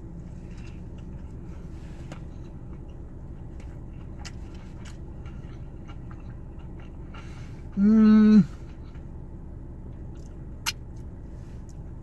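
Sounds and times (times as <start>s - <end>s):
steady low rumble: 0.0s - 12.0s
chewing crispy food: 0.3s - 7.8s.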